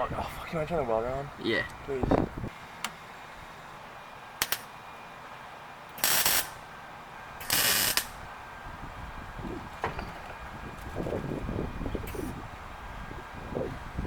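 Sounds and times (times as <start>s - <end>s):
crackling welds: 4.4s - 4.8s, 5.9s - 6.7s, 7.4s - 8.3s.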